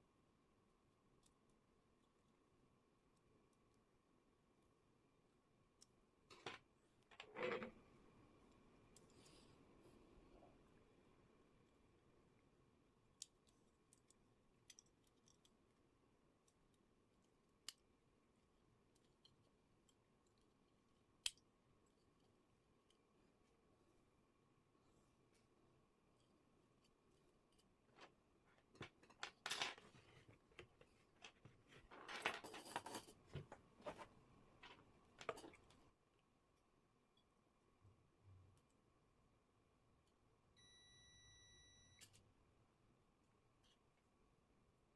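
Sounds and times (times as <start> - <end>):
small parts and tools clicking: 13.1 - 23.1.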